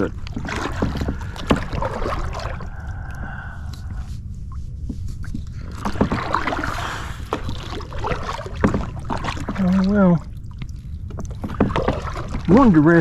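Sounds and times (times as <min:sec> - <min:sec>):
paddle splashing water: 0:00.0 - 0:02.8, 0:05.5 - 0:13.0
steady low rumble: 0:00.0 - 0:13.0.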